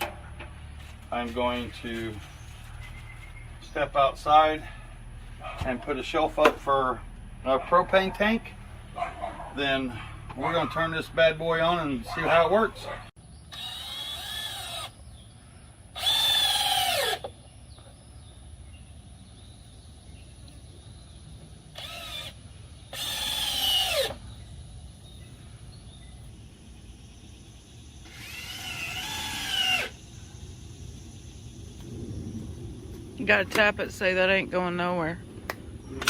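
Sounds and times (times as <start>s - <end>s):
power drill whirring: 13.5s - 14.9s, 16.0s - 17.3s, 21.7s - 24.2s, 28.0s - 30.0s.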